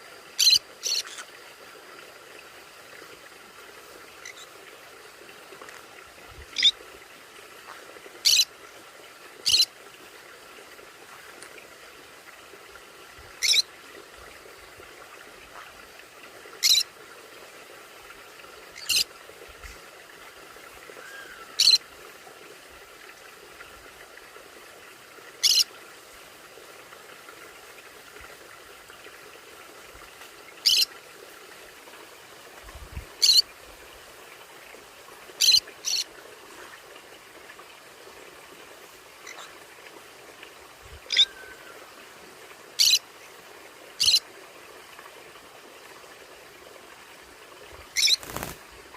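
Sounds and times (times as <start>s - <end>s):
faint steady hiss: 0.0s - 48.9s
parrot shrill chirps: 13.4s - 13.6s, 21.0s - 21.8s, 48.0s - 48.5s.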